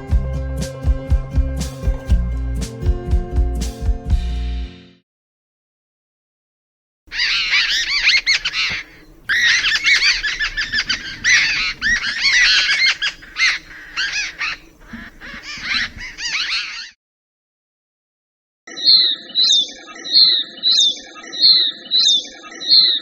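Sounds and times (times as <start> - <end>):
flock of birds chattering: 7.1 - 16.9.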